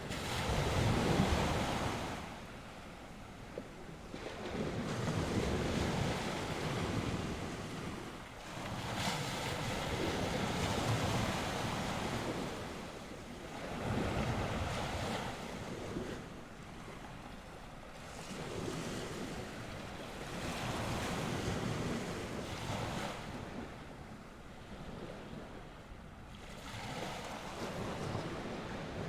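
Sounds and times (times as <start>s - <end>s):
waves breaking on shore: 0.0s - 29.0s
wind buffeting microphone: 3.4s - 16.5s, 26.9s - 29.0s.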